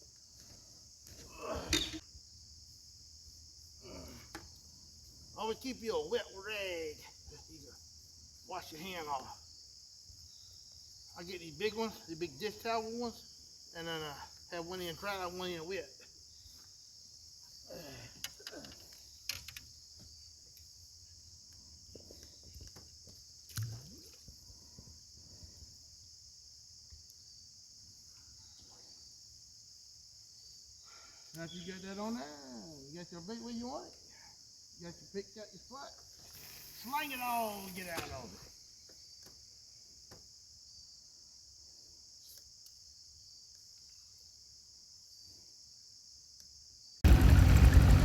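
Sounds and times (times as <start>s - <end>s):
faint high-pitched hiss: 0.0s - 46.8s
crickets chirring: 0.0s - 48.0s
faint ticks: 23.4s - 24.2s.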